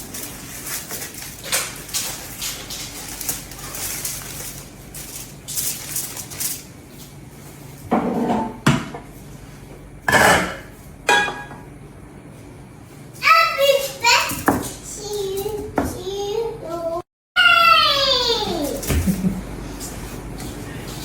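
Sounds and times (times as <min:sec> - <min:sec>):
dishes and utensils clattering: 0:07.9 - 0:09.0, 0:10.1 - 0:11.6.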